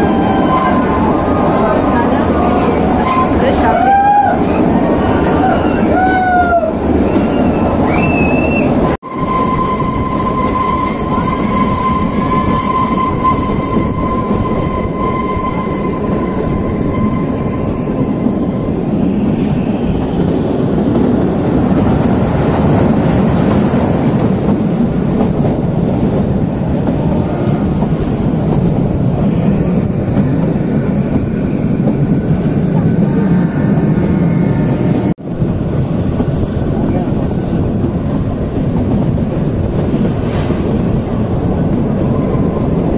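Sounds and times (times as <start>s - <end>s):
train wheels rumbling on track: 0.0s - 42.9s
high wheel squeal: 7.0s - 18.5s.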